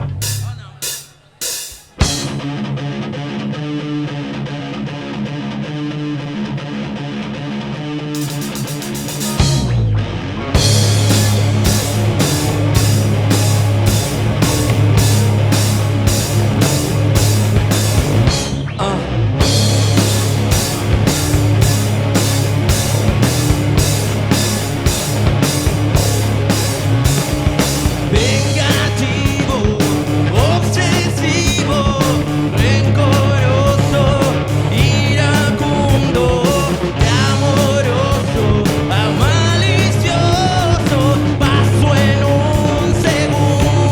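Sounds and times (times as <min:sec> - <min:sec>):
steady drum beat: 0:00.0 - 0:02.5, 0:08.2 - 0:09.9, 0:10.6 - 0:18.8, 0:19.4 - 0:43.9
rock band playing live: 0:00.0 - 0:43.9
person singing: 0:28.1 - 0:43.9.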